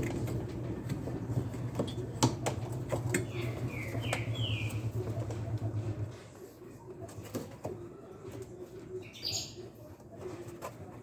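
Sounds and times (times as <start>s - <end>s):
bird chirping: 3.1s - 5.2s, 8.9s - 9.7s.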